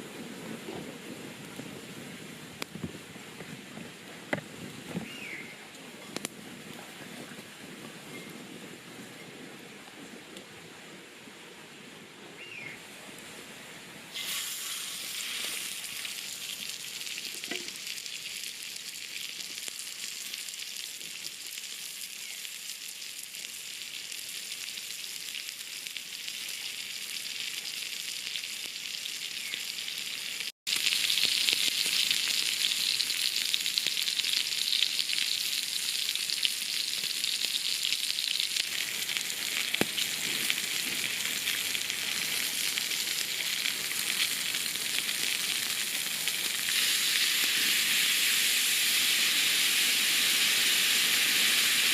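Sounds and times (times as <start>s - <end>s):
food sizzling in a pan: 14.1s - 51.9s.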